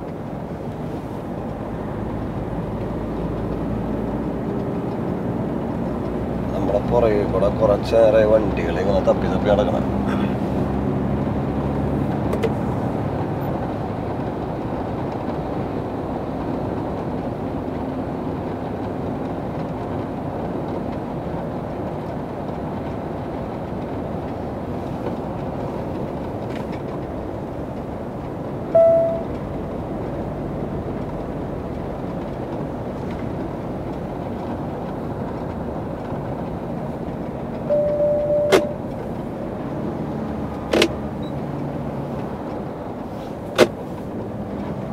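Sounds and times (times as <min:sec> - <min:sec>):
truck engine and road drone: 0:00.0 - 0:44.9
longer tone: 0:28.7 - 0:29.4, 0:37.7 - 0:38.8
short tone: 0:28.7 - 0:29.4, 0:37.7 - 0:38.8.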